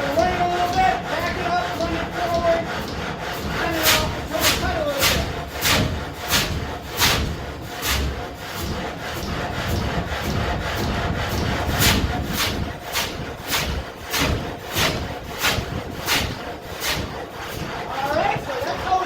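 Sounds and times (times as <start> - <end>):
saw blade rasping through log: 0.0 - 19.0
low rumble: 3.4 - 19.0.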